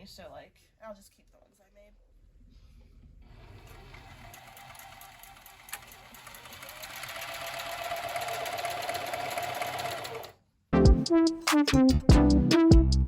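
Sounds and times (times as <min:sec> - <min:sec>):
sewing machine stitching: 0:03.2 - 0:10.4.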